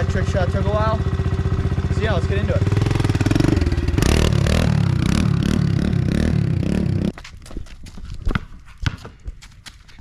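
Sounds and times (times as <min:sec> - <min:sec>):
dirt bike engine running: 0:00.0 - 0:07.2.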